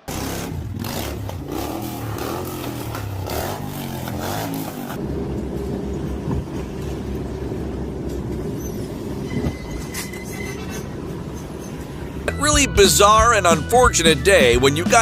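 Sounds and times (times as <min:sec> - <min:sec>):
car engine: 0:00.0 - 0:08.6
road noise: 0:00.0 - 0:15.0.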